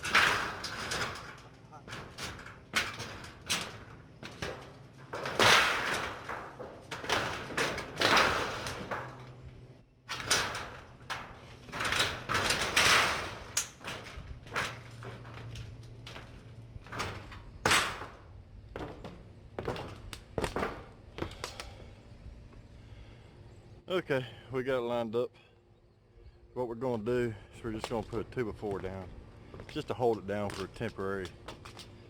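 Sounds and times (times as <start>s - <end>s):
metal sheet scraping over roof: 0.0s - 9.5s, 10.1s - 18.3s.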